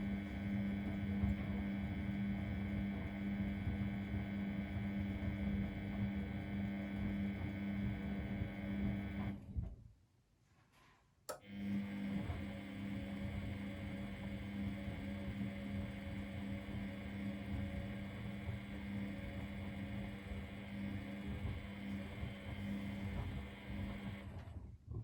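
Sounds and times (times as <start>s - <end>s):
washing machine humming: 0.0s - 9.4s, 11.3s - 24.6s.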